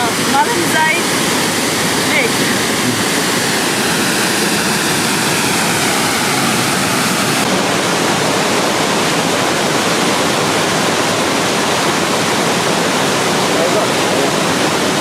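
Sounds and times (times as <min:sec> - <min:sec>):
waterfall pouring into pool: 0:00.0 - 0:15.0.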